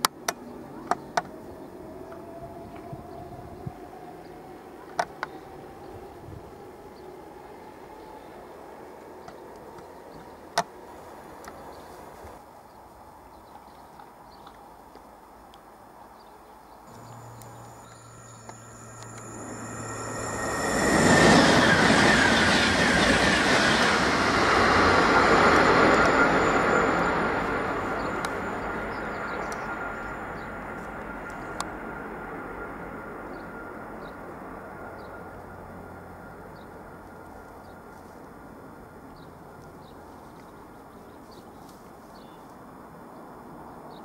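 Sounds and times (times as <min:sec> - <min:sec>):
high-speed train rushing past: 0:01.2 - 0:11.5, 0:16.9 - 0:39.6.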